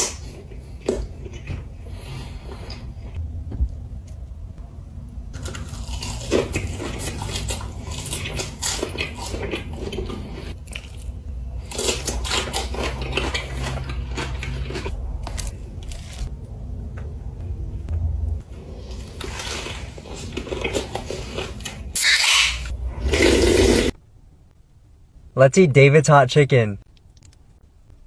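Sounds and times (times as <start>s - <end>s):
crunchy chewing: 5.4s - 16.3s, 18.7s - 23.9s.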